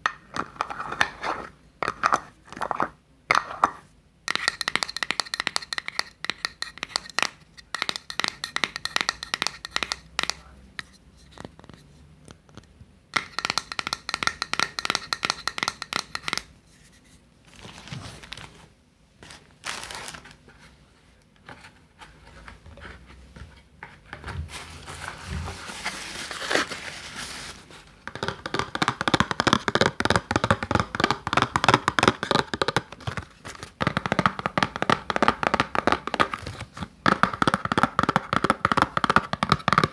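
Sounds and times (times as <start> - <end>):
soft brushing: 16.6 - 28.0
crinkling handling sounds: 16.6 - 28.1.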